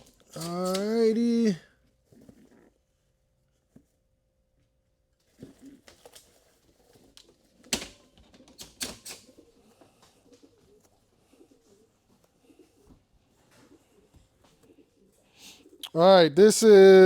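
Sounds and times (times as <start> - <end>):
pigeons cooing softly: 5.3 - 16.0.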